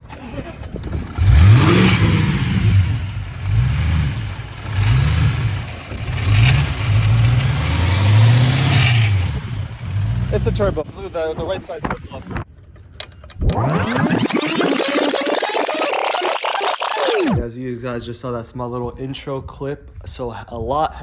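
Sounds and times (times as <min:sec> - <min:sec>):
car engine revving: 0:00.0 - 0:12.4, 0:13.4 - 0:17.4.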